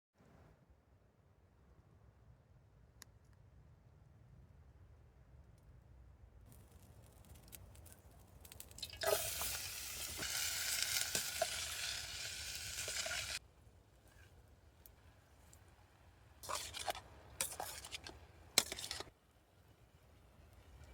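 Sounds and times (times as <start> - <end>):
food sizzling in a pan: 8.8 - 13.4.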